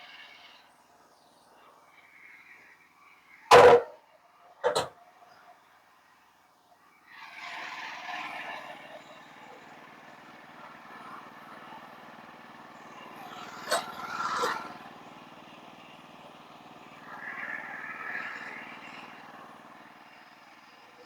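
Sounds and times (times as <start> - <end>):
engine running: 3.5 - 4.0, 4.6 - 4.9, 7.0 - 21.0
sharp knock: 3.5 - 4.0.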